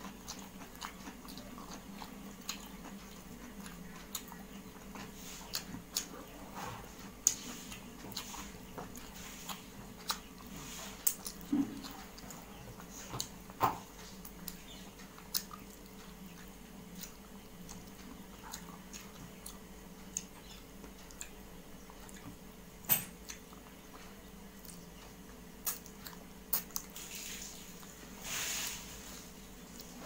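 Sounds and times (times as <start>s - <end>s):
person chewing food: 0.0s - 22.4s, 23.2s - 30.0s.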